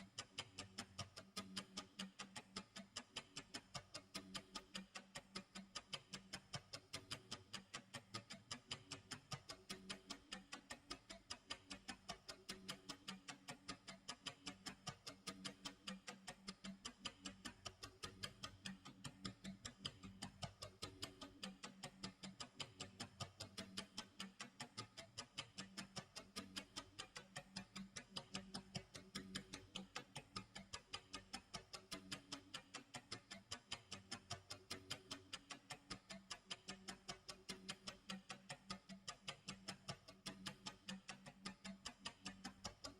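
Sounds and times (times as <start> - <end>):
clock ticking: 0.0 - 42.9.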